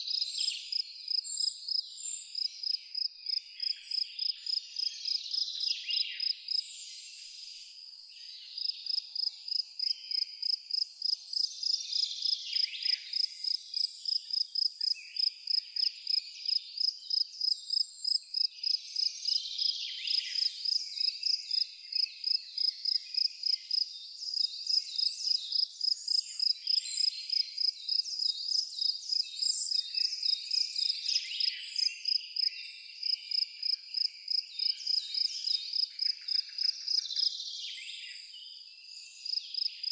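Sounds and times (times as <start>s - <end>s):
insect chirping: 8.5s - 38.3s, 39.2s - 39.9s.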